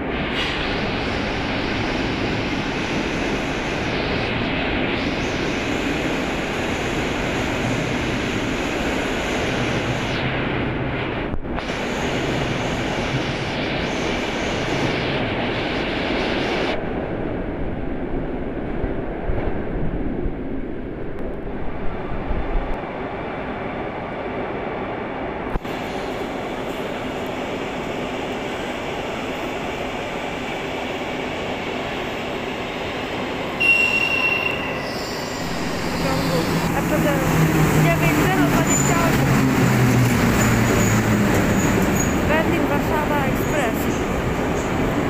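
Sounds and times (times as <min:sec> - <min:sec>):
train wheels rumbling on rail: 0:00.0 - 0:45.0
high squeal: 0:33.5 - 0:42.3.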